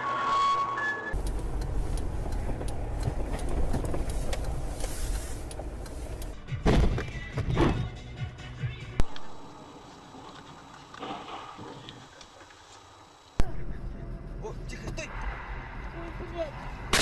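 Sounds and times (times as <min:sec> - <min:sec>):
two-tone emergency siren: 0:00.0 - 0:01.2
car road and engine rumble: 0:00.1 - 0:17.0.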